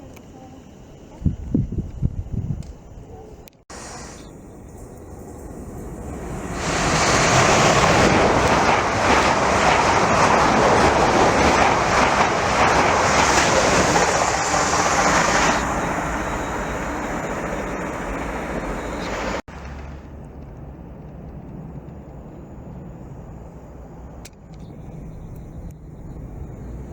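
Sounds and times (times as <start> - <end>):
train passing at speed: 3.7 - 24.1.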